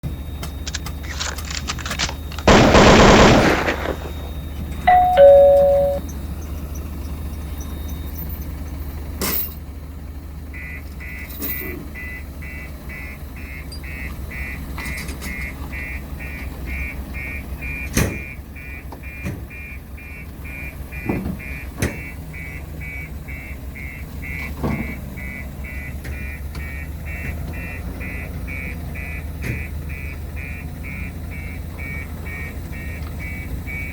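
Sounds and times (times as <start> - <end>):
road roller engine running: 0.0 - 33.9
reversing beeper: 2.0 - 9.0, 10.4 - 33.9
loud burst of noise: 2.5 - 4.4
tone dropping in pitch: 4.9 - 6.0.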